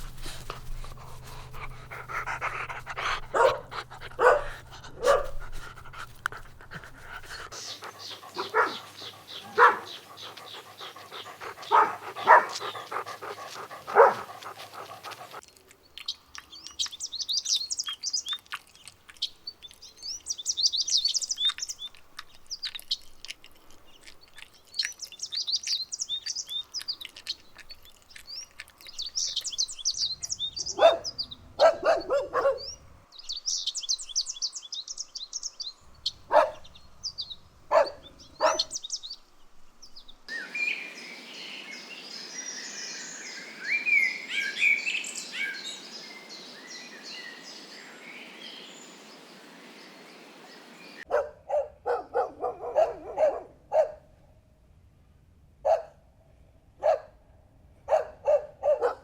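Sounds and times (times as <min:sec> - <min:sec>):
small birds chirping: 0:00.0 - 0:54.0, 0:57.9 - 0:59.0
dog barking: 0:03.0 - 0:05.5, 0:07.8 - 0:15.4, 0:30.6 - 0:32.8, 0:36.2 - 0:36.7, 0:37.7 - 0:38.8, 0:51.1 - 0:54.1, 0:55.6 - 0:56.0, 0:56.8 - 0:57.2, 0:57.9 - 0:59.0
steady background hiss: 0:39.2 - 0:51.0.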